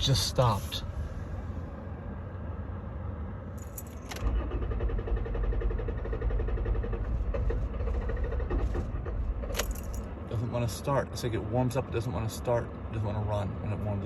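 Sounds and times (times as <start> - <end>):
key rattling in ignition: 3.6 - 10.2
starter motor cranking engine: 4.1 - 9.7.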